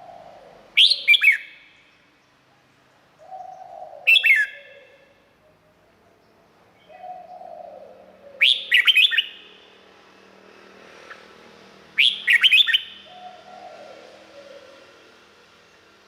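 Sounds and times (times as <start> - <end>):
bird singing whistled phrases: 0.8 - 1.6, 4.0 - 4.6, 8.4 - 9.6, 12.0 - 13.1.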